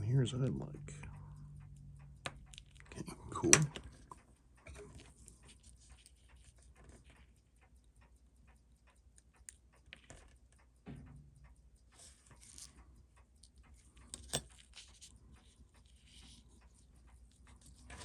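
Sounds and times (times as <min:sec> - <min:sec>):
small metal tool clicks: 0:14.0 - 0:15.1.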